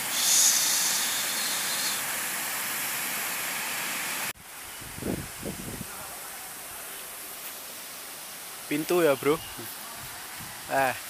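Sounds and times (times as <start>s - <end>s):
water rushing over a weir: 0.0s - 4.4s.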